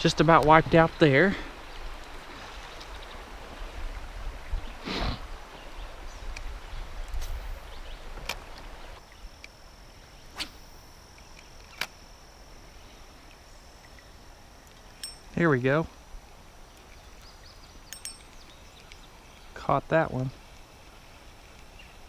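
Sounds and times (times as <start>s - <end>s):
high thin whine: 7.2s - 22.0s
reel clicks: 10.5s - 15.4s, 16.7s - 19.1s.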